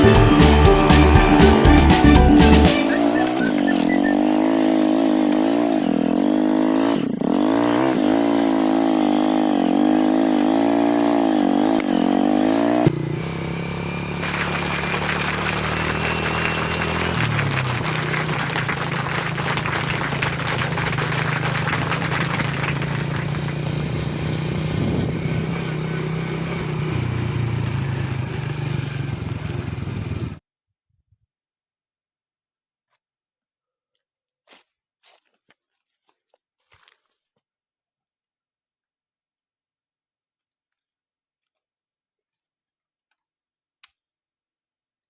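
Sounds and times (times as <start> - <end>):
low engine drone: 0.0 - 30.4
motorcycle engine revving: 0.0 - 30.4.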